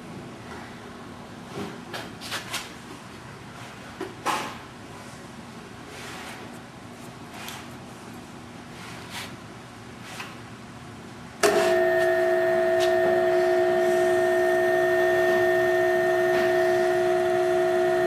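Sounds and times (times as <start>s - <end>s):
tapping machine whining: 11.4s - 18.0s.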